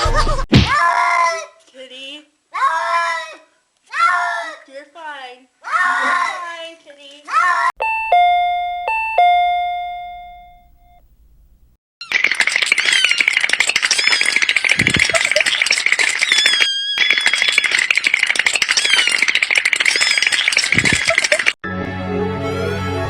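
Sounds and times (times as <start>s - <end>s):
doorbell chime: 7.8s - 11.0s
dense rattling with squeaky chirps: 12.0s - 21.6s.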